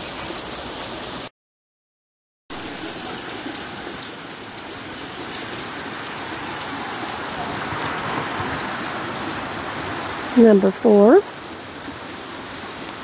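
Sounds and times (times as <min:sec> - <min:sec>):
high-pitched insect trill: 0:02.6 - 0:08.0
rushing hiss: 0:02.6 - 0:10.4.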